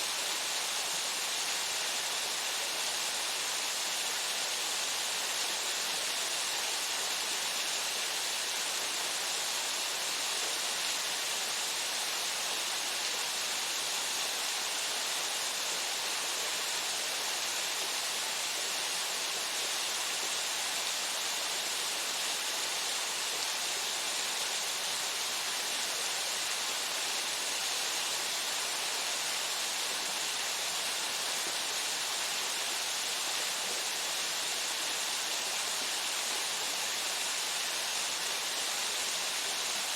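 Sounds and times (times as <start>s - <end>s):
waterfall pouring into pool: 0.0s - 39.9s.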